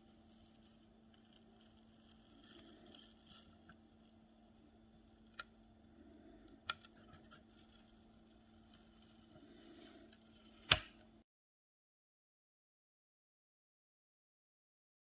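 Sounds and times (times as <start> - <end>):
faint steady hum: 0.0 - 11.2
sharp clicks of small parts: 10.4 - 11.0.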